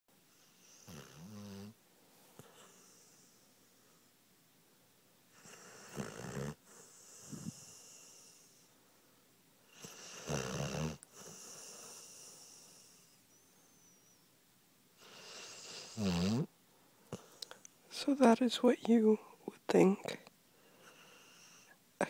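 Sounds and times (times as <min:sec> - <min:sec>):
puppy snoring: 0:00.3 - 0:01.8, 0:02.4 - 0:03.5, 0:05.3 - 0:08.7, 0:09.7 - 0:14.2, 0:15.0 - 0:16.5, 0:17.1 - 0:17.6, 0:20.8 - 0:21.8.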